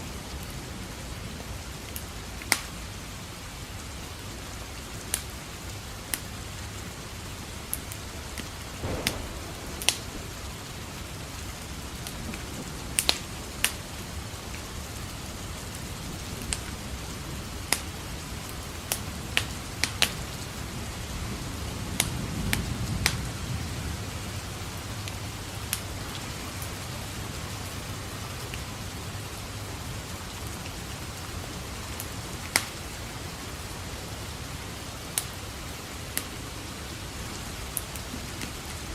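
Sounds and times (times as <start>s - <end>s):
steady rain: 0.0s - 38.9s
wood fire crackling: 7.4s - 23.2s
distant thunder rolling: 8.8s - 14.5s.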